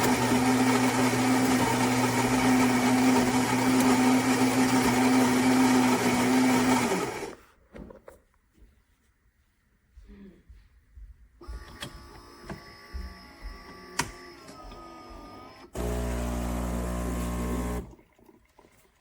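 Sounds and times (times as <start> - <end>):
espresso machine whirring: 0.0 - 7.4, 11.5 - 17.9
espresso machine loud buzz: 15.7 - 17.9.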